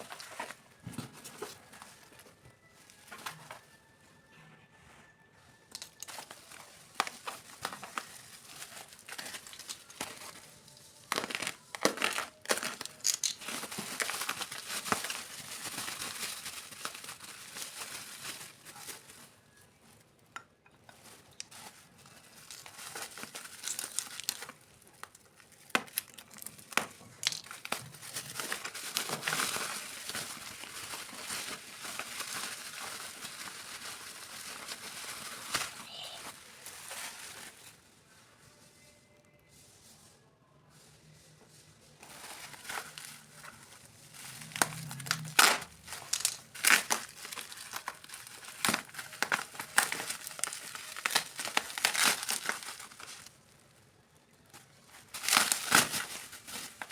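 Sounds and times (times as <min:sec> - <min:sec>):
packaging crinkling and rustling: 0:00.0 - 0:04.0, 0:05.1 - 0:38.1, 0:41.9 - 0:56.9
packaging tearing: 0:05.7 - 0:19.6, 0:21.0 - 0:37.6, 0:42.0 - 0:53.5, 0:54.5 - 0:56.9.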